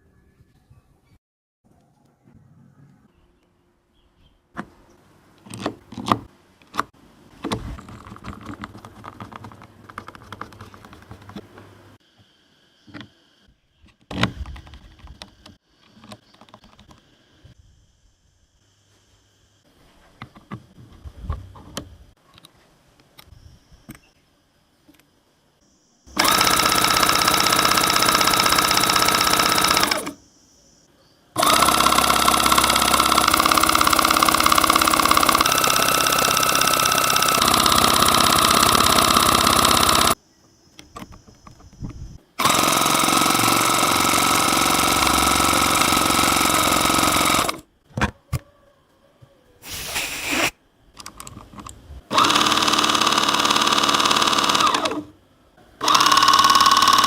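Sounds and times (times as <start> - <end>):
motor-driven machine running: 26.1 - 30.3, 31.4 - 40.2, 40.8 - 47.6, 52.1 - 55.1, 55.8 - 57.0.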